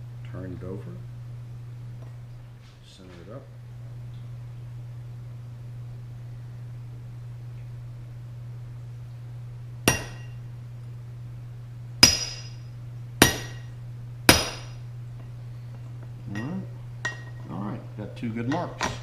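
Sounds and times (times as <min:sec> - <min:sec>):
steady low hum: 0:00.0 - 0:19.0
hammer striking metal: 0:09.9 - 0:10.4, 0:12.0 - 0:12.6, 0:13.2 - 0:13.7, 0:14.3 - 0:14.8.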